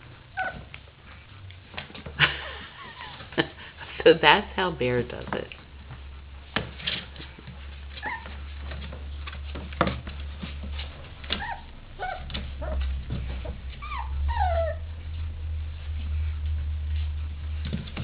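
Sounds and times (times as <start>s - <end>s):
puppies knocking and scuffling: 0.0s - 18.0s
puppies whimpering: 0.1s - 1.4s, 7.6s - 8.7s, 11.2s - 16.2s.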